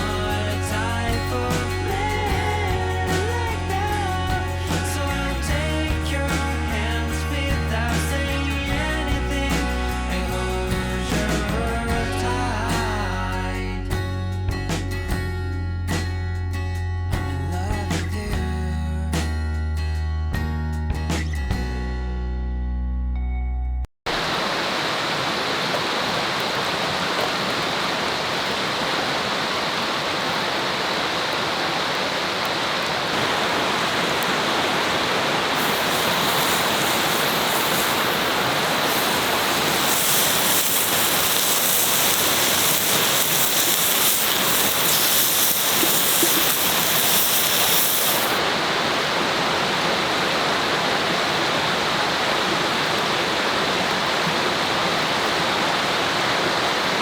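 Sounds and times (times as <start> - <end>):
river water flowing: 24.1 - 57.0
bright hiss: 33.1 - 49.4.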